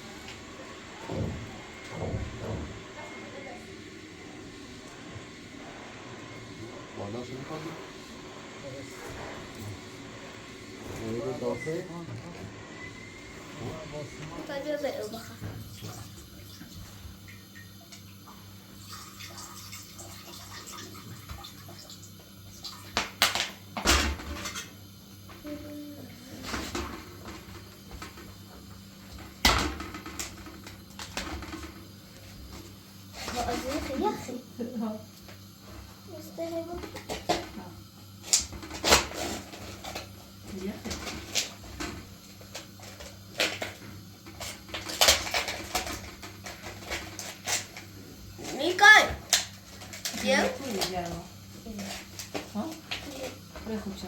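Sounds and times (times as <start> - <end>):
water running: 0.0 - 54.0.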